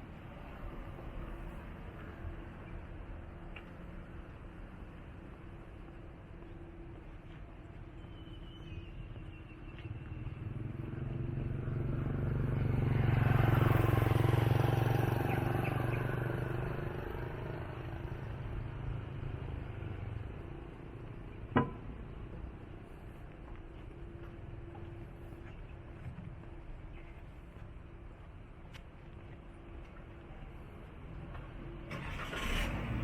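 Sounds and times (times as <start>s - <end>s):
motor vehicle passing: 10.1s - 20.4s.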